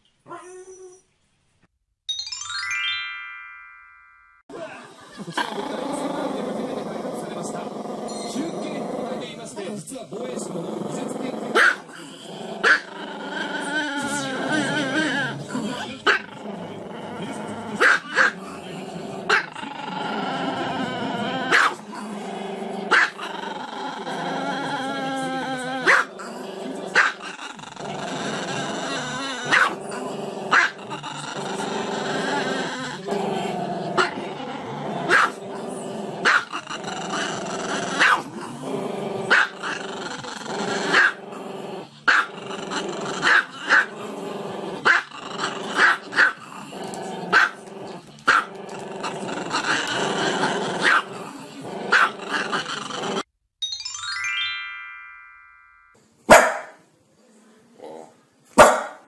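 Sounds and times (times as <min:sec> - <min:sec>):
dog barking sharply: 0:56.3 - 0:56.8, 0:58.6 - 0:59.0.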